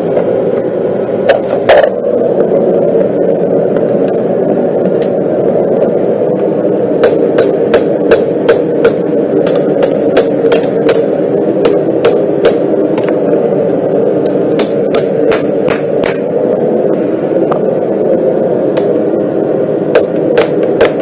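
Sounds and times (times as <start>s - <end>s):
loud steady drone: 0.0s - 21.0s
hammer striking steel: 7.0s - 13.1s, 14.6s - 16.3s, 19.9s - 21.0s.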